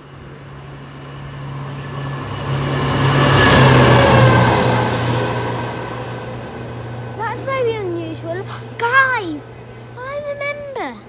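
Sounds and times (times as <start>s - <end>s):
train passing at speed: 0.0s - 11.0s.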